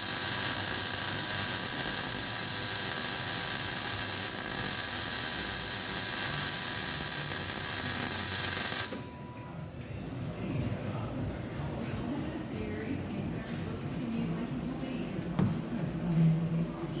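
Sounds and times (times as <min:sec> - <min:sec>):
welding arc crackling: 0:00.0 - 0:09.0.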